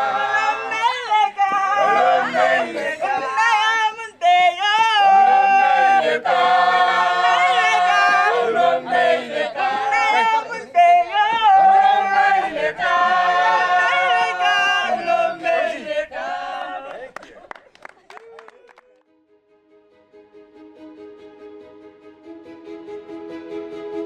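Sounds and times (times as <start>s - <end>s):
group singing a cappella: 0.0s - 17.2s.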